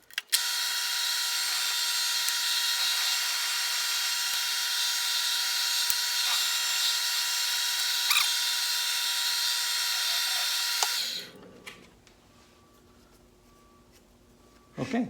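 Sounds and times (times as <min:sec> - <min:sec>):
lathe motor and gear whine: 0:00.4 - 0:11.3
cutting hiss: 0:05.4 - 0:11.3.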